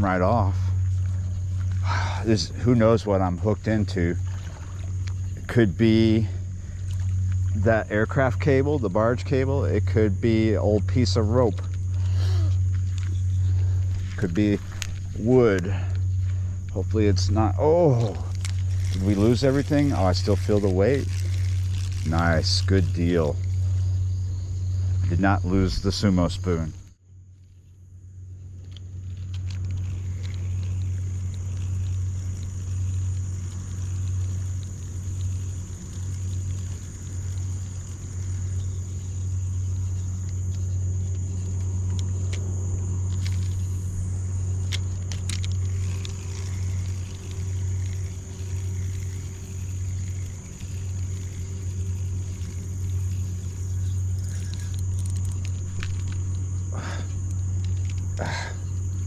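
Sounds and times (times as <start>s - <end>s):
high-pitched whine: 0.0s - 27.0s
low engine rumble: 0.0s - 59.0s
low mechanical hum: 0.0s - 59.0s
faint ticks: 3.5s - 7.6s, 26.7s - 59.0s.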